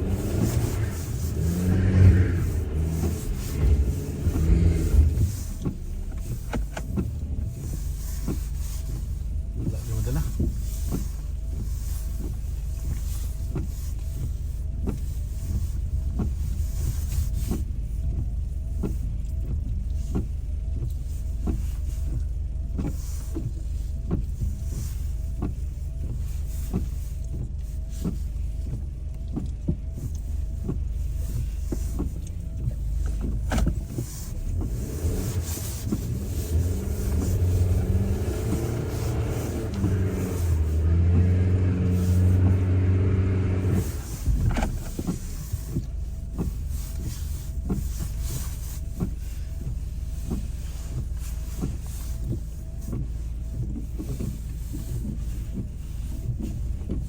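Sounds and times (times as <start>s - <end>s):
road and engine rumble: 0.0s - 57.0s.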